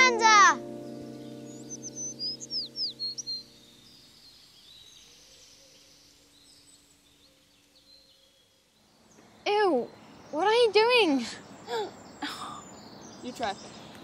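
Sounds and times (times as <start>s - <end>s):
held music chord: 0.0s - 4.3s
bird chirping: 0.0s - 14.0s
faint outdoor background: 0.0s - 14.0s.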